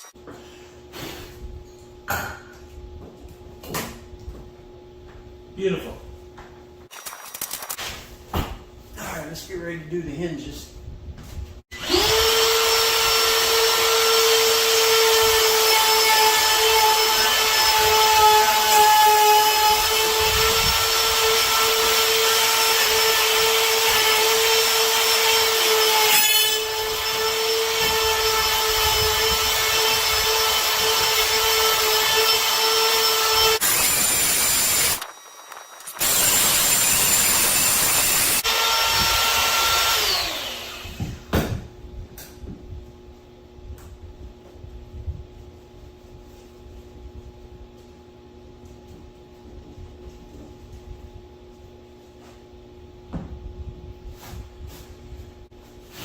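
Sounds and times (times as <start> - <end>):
power router whining: 11.8 - 18.7, 19.3 - 41.2.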